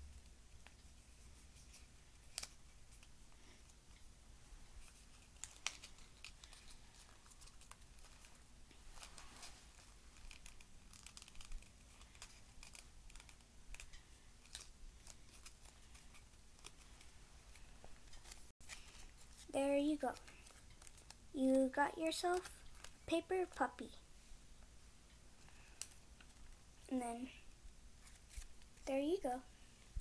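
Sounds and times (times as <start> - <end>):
paper rustling: 4.8 - 19.5, 20.1 - 21.2
scissors cutting paper: 9.7 - 16.8.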